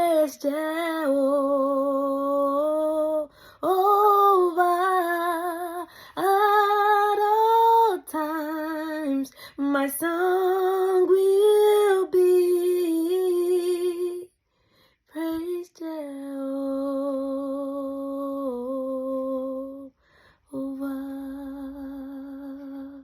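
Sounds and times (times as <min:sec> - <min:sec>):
woman singing: 0:00.0 - 0:14.4, 0:15.1 - 0:23.0.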